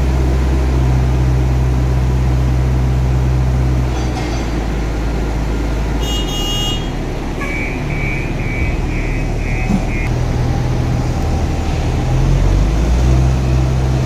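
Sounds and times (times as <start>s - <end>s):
diesel engine droning: 0.0s - 14.0s
warning alarm beeping: 7.4s - 10.1s.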